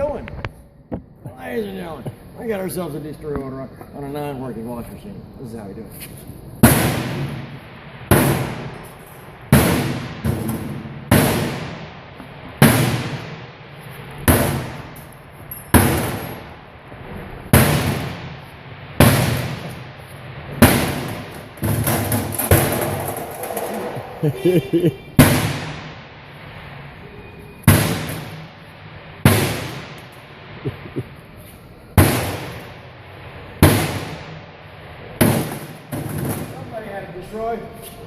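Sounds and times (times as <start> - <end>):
loud metal bangs: 6.6 - 26.9, 27.6 - 30.9, 31.9 - 37.4.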